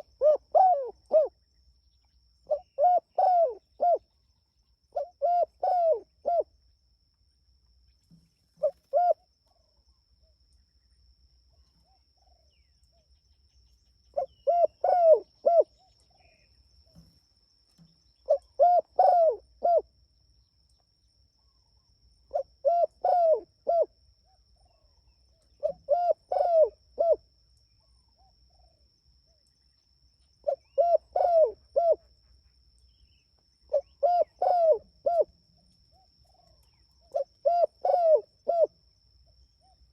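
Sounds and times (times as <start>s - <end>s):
dove cooing: 0.0s - 1.4s, 2.5s - 4.1s, 4.9s - 6.5s, 8.6s - 9.2s, 14.1s - 16.4s, 17.8s - 19.9s, 22.3s - 23.9s, 25.6s - 27.2s, 30.4s - 32.0s, 33.7s - 35.3s, 35.9s - 38.8s.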